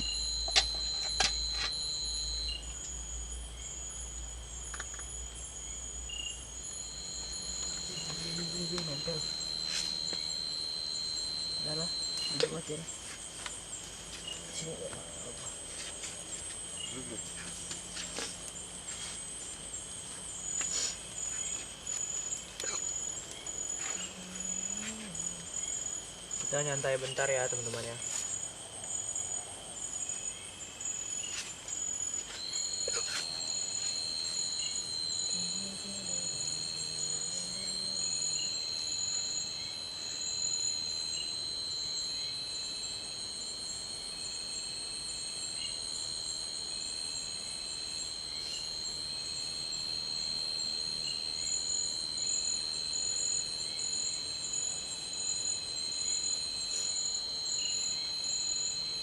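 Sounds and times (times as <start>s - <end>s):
crickets and insects trilling: 0.0s - 59.0s
steady shrill insect tone: 0.0s - 59.0s.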